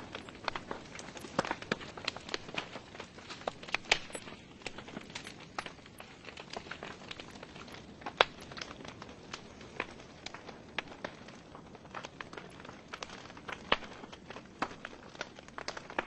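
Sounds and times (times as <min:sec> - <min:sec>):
fire hissing softly: 0:00.0 - 0:16.0
logs crackling and popping: 0:00.0 - 0:16.0.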